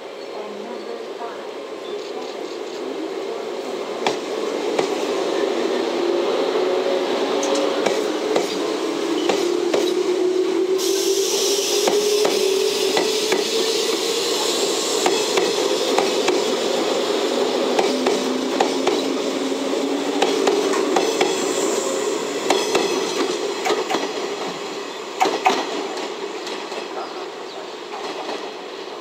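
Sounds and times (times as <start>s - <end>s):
high hiss: 10.7s - 25.2s.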